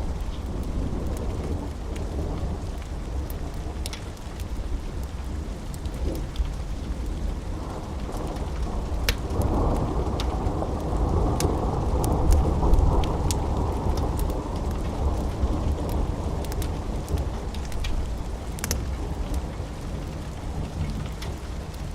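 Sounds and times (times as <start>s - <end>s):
steady rain: 0.0s - 21.9s
sharp crackles: 8.0s - 19.5s.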